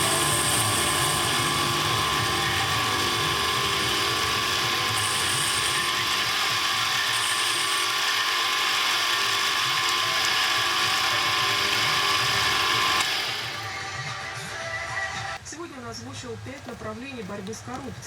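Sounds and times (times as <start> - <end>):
power tool whining: 0.0 - 15.4.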